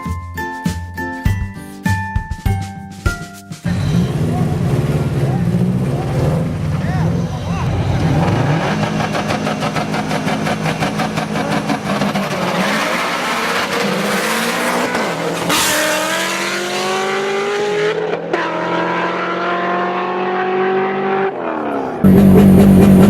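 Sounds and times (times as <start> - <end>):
car engine revving and accelerating: 3.7 - 23.0.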